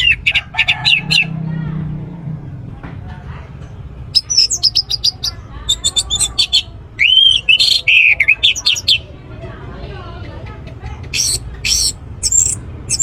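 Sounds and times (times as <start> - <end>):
thrush singing chirps and whistles: 4.1 - 9.0, 11.2 - 13.0.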